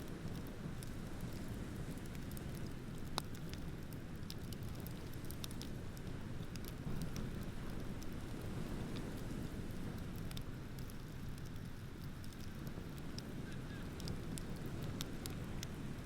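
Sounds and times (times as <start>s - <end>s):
bonfire crackling: 0.0s - 16.0s.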